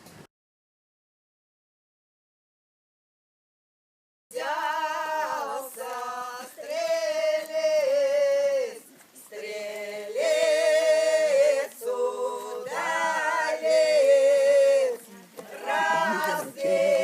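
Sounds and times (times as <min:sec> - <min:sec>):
choir singing with vibrato: 0:04.3 - 0:17.0.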